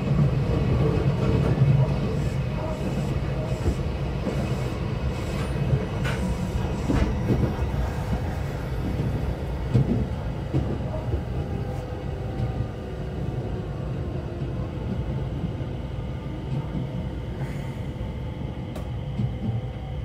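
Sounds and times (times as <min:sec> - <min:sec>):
train low rumble: 0:00.0 - 0:20.0.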